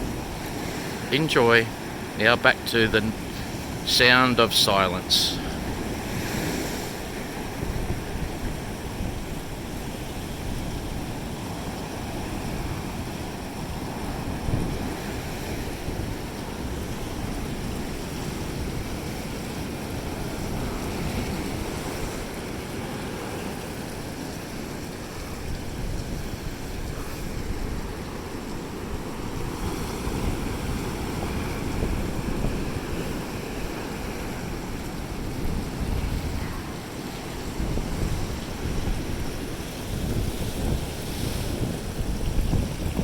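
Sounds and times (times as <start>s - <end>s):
ocean waves breaking on beach: 0.0s - 43.0s
wind rumbling on microphone: 5.4s - 22.4s, 25.1s - 43.0s.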